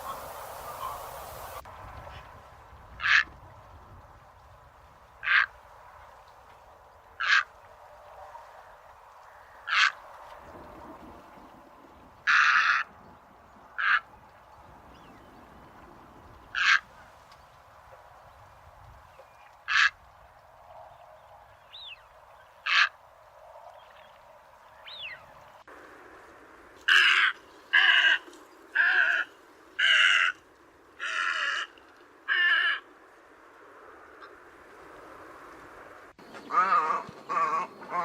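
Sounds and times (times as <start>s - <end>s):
bird calls: 0.0s - 1.6s, 23.8s - 25.5s, 36.2s - 38.0s.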